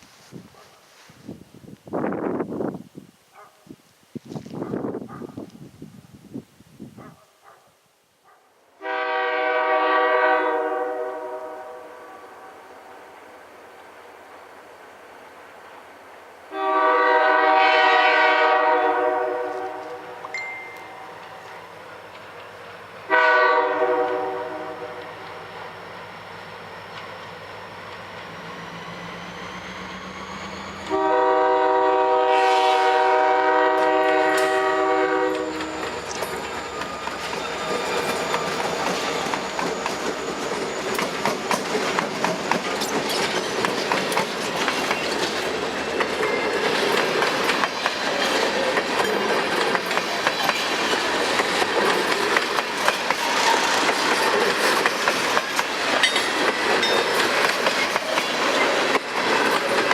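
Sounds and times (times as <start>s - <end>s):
locomotive air horn: 8.8s - 12.6s, 16.5s - 20.2s, 23.1s - 25.1s, 30.8s - 36.0s
train wheels clacking on rails: 33.2s - 59.9s.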